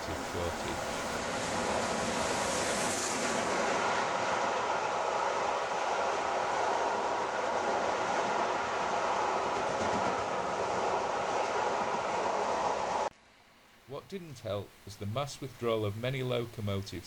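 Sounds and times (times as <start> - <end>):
train running: 0.0 - 13.1.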